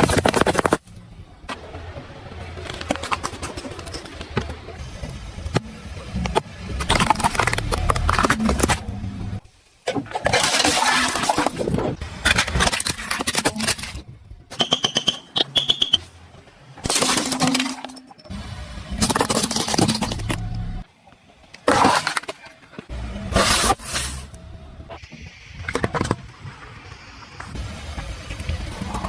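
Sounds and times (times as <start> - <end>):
car crushing objects: 0.0 - 1.7, 2.5 - 15.3, 16.8 - 20.9, 21.6 - 25.0.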